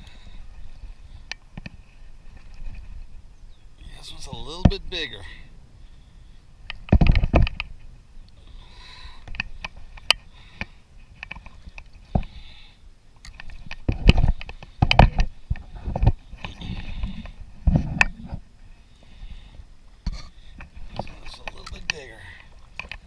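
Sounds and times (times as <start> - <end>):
thumps and rustles: 13.4 - 18.5.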